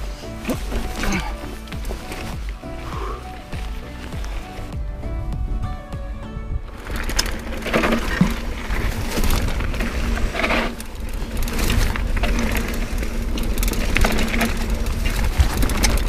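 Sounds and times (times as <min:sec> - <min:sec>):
bike chain and frame rattling: 0:00.0 - 0:04.8, 0:06.7 - 0:16.0
low rumble on microphone: 0:00.0 - 0:16.0
tyres crunching over loose ground: 0:00.0 - 0:16.0.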